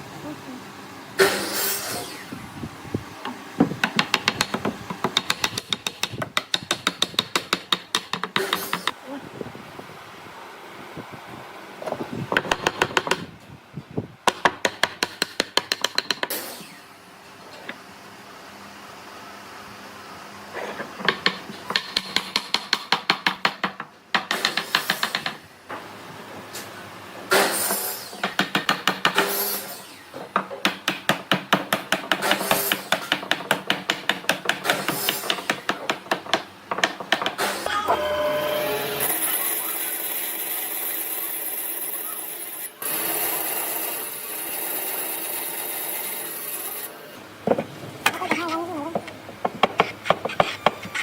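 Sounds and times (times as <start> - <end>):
hand tool knocking on wood: 3.6 - 9.0, 30.4 - 37.4, 47.5 - 50.9.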